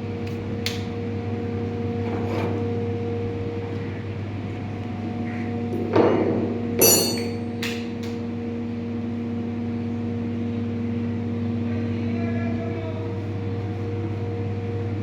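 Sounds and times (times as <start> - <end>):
knocks with metallic ring: 6.0 - 7.5.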